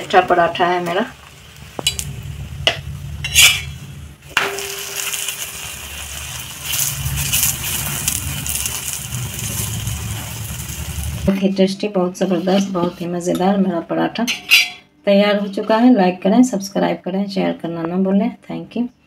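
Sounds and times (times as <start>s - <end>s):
flatbread sizzling in a pan: 0.4s - 11.3s.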